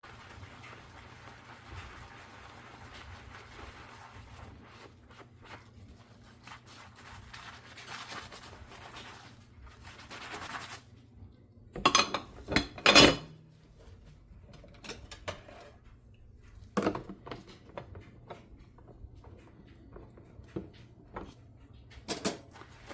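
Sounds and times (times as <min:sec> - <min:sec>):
soft scrubbing of dishes: 0:00.0 - 0:11.2, 0:11.8 - 0:22.9
crockery and utensils clattering: 0:11.8 - 0:13.4, 0:22.0 - 0:22.5.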